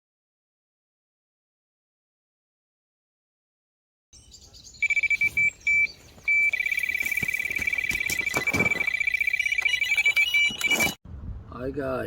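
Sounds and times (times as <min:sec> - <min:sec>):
bite alarm beeping: 0:04.8 - 0:11.0.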